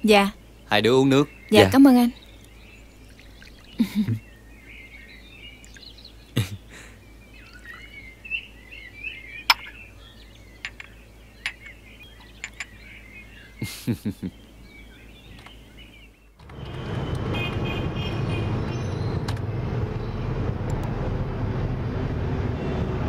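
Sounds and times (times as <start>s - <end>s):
small birds chirping: 0.0s - 16.4s.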